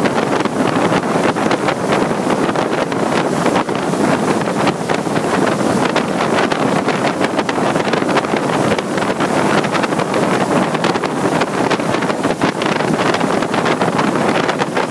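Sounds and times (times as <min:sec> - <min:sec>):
strong wind buffeting microphone: 0:00.0 - 0:14.9.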